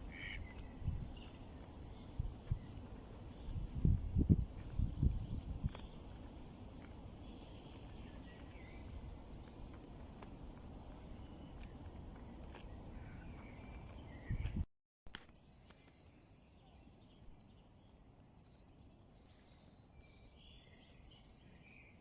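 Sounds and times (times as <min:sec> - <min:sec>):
insects chirping in pulsed bursts: 0:00.0 - 0:12.1.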